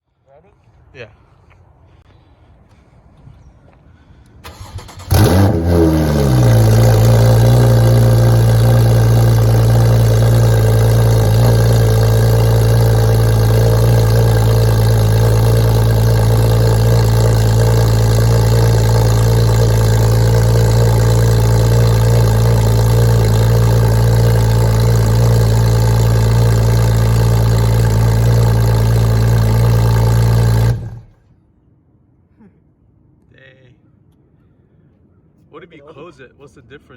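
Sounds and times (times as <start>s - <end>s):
starter motor cranking: 4.5s - 31.2s
car engine revving and idling: 4.8s - 31.2s.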